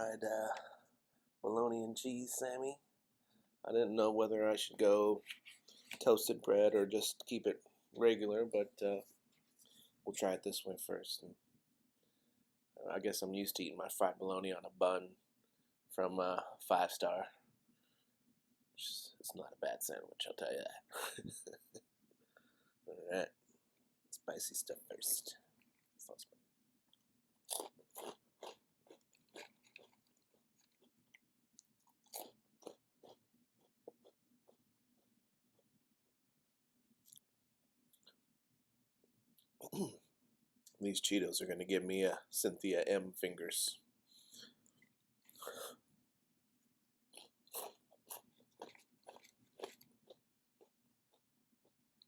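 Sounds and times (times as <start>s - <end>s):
crunchy snack chewing: 27.4s - 35.7s, 47.1s - 51.8s.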